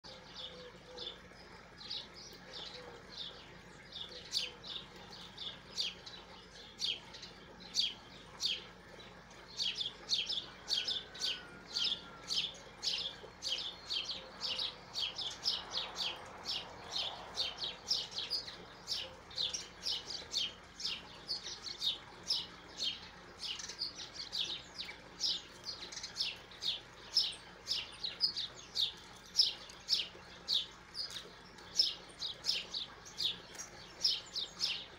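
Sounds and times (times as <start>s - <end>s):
small bird chirping: 9.5s - 34.9s.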